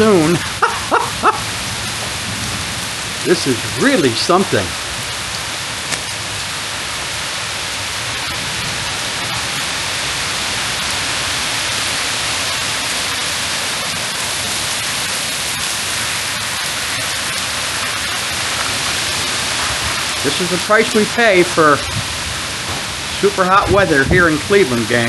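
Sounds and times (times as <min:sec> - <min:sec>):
heavy rain pouring: 0:00.0 - 0:25.0
sharp raindrop ticks: 0:02.8 - 0:06.5, 0:12.2 - 0:24.7.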